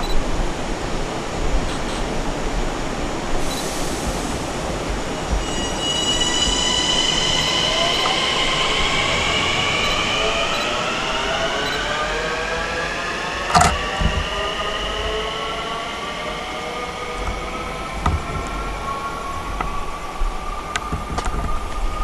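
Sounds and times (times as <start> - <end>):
electric train drive whine: 2.5 - 22.0.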